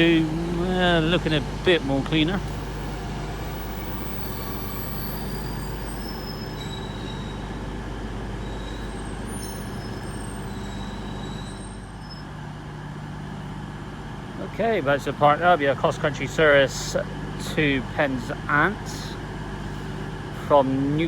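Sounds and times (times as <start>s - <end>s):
diesel train engine hum: 0.0s - 21.0s
wheel squeals: 2.4s - 12.3s.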